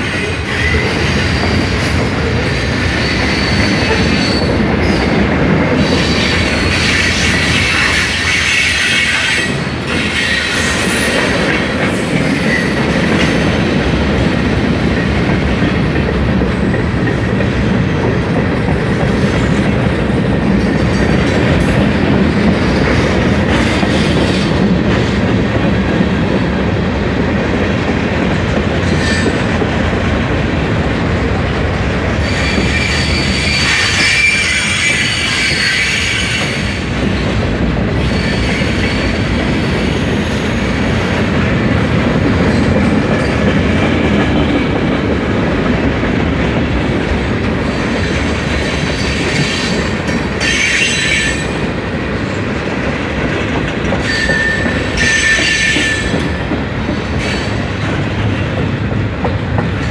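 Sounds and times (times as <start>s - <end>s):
train wheels clickety-clack: 0.0s - 59.9s
high-pitched wheel squeal: 32.2s - 36.7s, 54.0s - 56.2s.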